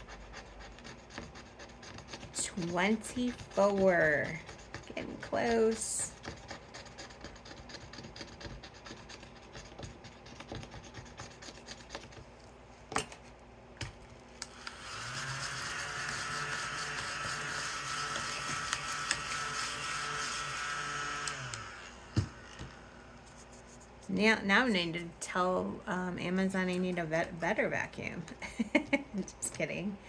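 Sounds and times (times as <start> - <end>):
handheld vacuum humming: 14.4 - 23.3.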